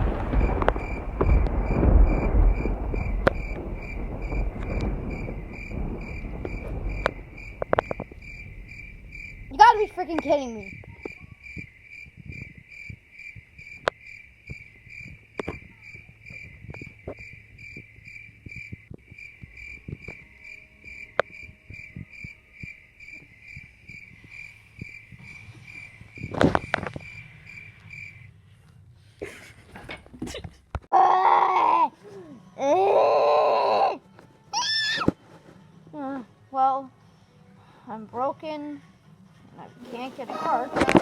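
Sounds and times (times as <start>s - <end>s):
rustling thump: 0.0s - 10.9s
cricket chirping: 0.0s - 28.6s
people yelling: 39.8s - 41.0s.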